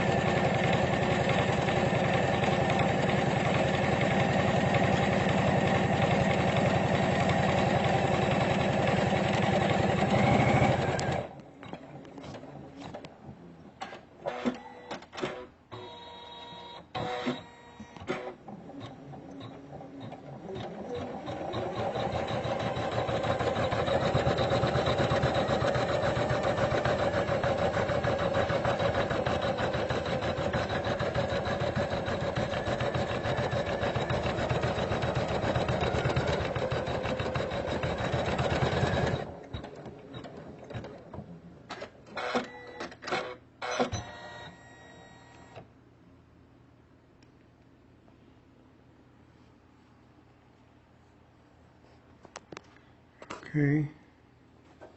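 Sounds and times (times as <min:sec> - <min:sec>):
embroidery machine stitching: 0:00.0 - 0:13.0, 0:13.8 - 0:44.2.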